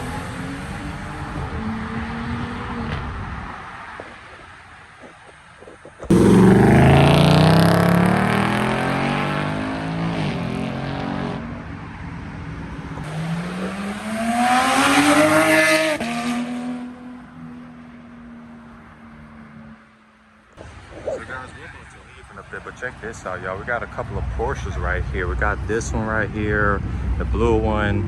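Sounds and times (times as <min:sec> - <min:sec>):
car engine revving past: 0:06.1 - 0:11.6, 0:13.0 - 0:17.2.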